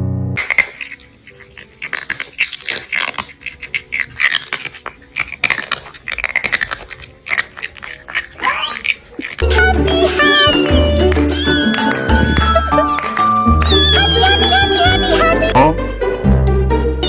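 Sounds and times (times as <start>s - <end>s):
crunchy chewing and biting: 0.4s - 15.5s.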